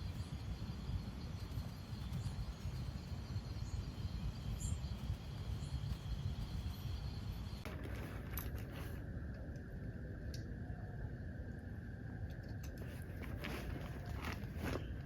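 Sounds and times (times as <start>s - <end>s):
high insect drone: 0.0s - 7.7s.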